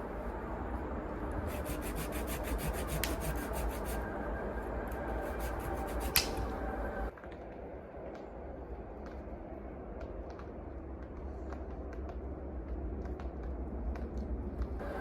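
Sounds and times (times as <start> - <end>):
steady rubbing noise: 0.8 - 7.1
short rasping strokes: 1.5 - 4.1
sharp click: 6.1 - 6.6.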